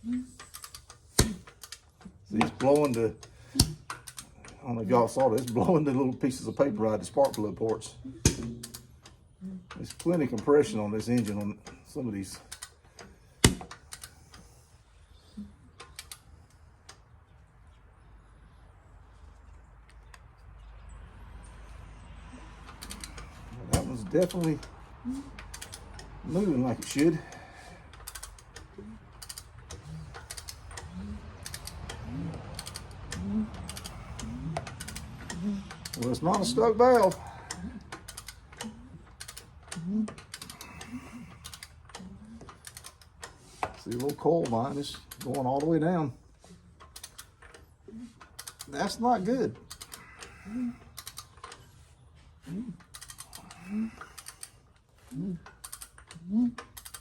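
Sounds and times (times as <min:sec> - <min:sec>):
low creak: 0:21.7 - 0:36.2
ratchet wrench clicking: 0:22.7 - 0:24.8, 0:25.4 - 0:41.9, 0:42.5 - 0:44.2, 0:49.6 - 0:50.3, 0:52.9 - 0:54.8, 0:55.5 - 0:57.0.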